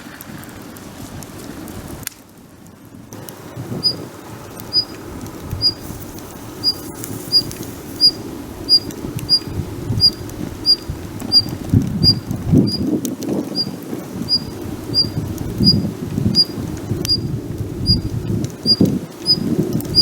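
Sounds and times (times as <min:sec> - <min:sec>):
low crackling rustling noise: 0:00.0 - 0:20.0
small bird chirping: 0:03.8 - 0:04.0, 0:04.7 - 0:12.9, 0:13.5 - 0:20.0.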